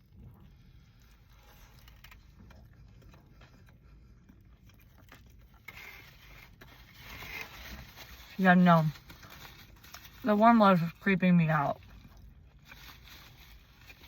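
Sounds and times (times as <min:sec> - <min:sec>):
chewing: 0:00.2 - 0:06.5
rustling scrape: 0:00.6 - 0:14.0.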